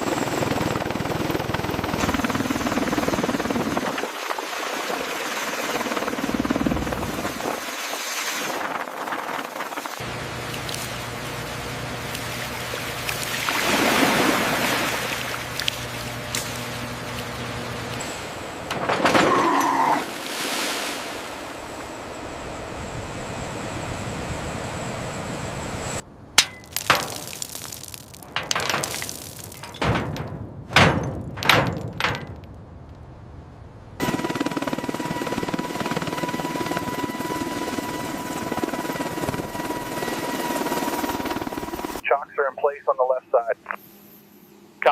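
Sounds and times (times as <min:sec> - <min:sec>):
heavy thuds and knocks: 0:28.2 - 0:32.5.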